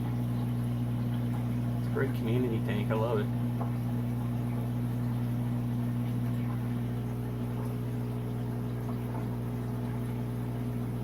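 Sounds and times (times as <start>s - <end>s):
aquarium pump hum: 0.0s - 11.0s
moving water: 0.0s - 11.0s.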